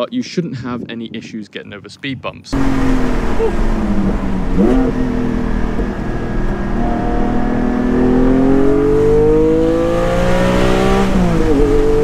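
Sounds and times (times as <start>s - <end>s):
car engine accelerating: 2.5s - 12.0s.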